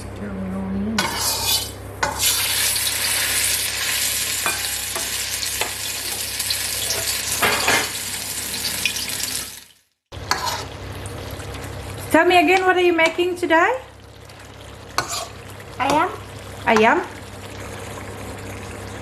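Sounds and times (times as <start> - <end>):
utensil scraping and clinking pan: 1.0 - 2.6, 4.4 - 5.8, 10.2 - 10.7, 15.0 - 16.0
chicken sizzling in hot oil: 1.0 - 19.0.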